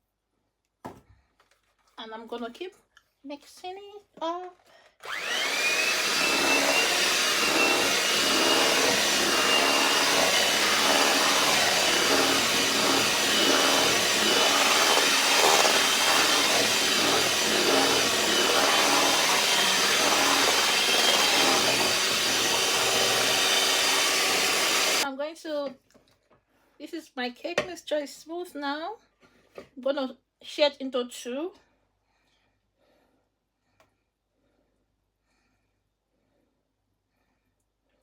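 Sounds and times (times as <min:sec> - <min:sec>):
electric mixer motor whining: 0:05.0 - 0:25.0.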